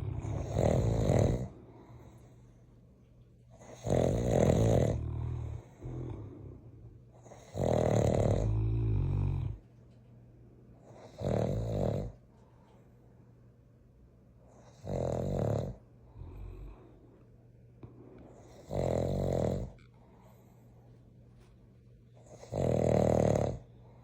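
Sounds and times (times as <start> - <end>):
dogs snoring: 0.0 - 2.6, 3.5 - 9.6, 10.8 - 12.3, 14.5 - 17.1, 18.2 - 20.6, 22.2 - 24.0.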